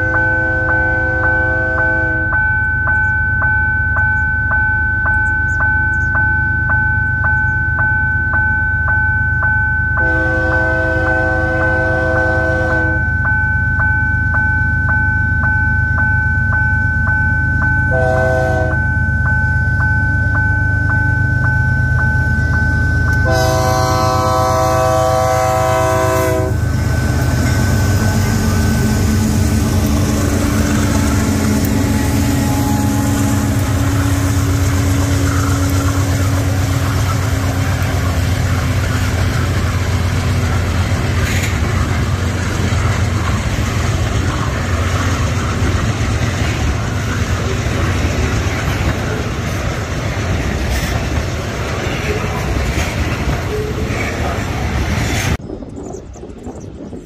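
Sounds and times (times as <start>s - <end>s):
locomotive horn blasts: 0.0s - 2.4s, 10.0s - 13.1s, 17.9s - 18.8s, 23.2s - 26.7s, 30.6s - 36.8s
level-crossing warning bell: 0.0s - 54.7s
heavy locomotive engine rumble: 0.0s - 57.0s.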